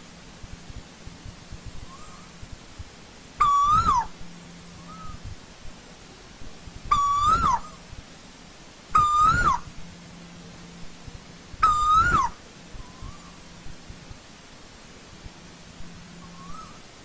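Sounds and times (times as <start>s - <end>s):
bird whistled calls: 1.8s - 2.4s, 3.4s - 4.1s, 4.8s - 5.2s, 6.9s - 7.8s, 9.0s - 9.7s, 11.6s - 13.4s, 16.2s - 16.8s.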